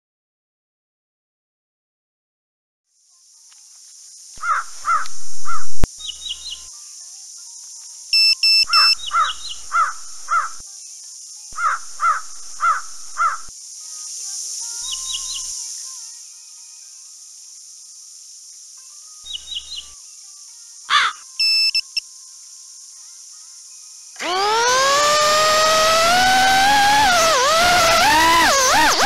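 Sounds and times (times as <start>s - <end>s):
birds cawing: 4.4s - 5.7s, 8.8s - 10.6s, 11.6s - 13.5s, 20.9s - 21.2s
electronic beeps: 8.2s - 9.1s, 21.4s - 22.0s
steady high-pitched buzz: 8.2s - 13.5s, 23.7s - 29.0s.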